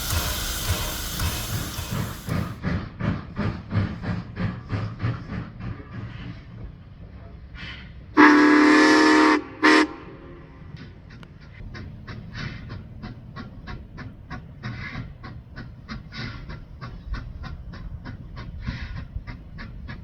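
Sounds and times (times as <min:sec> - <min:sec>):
hissing puff: 0:00.0 - 0:02.6
steam locomotive chuffing: 0:00.0 - 0:07.3, 0:11.0 - 0:20.0.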